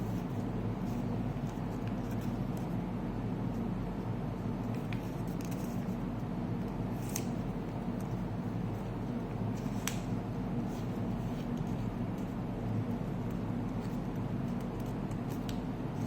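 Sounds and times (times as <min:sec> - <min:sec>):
steady low hum: 0:00.0 - 0:16.0
paper being folded and creased: 0:07.0 - 0:07.4.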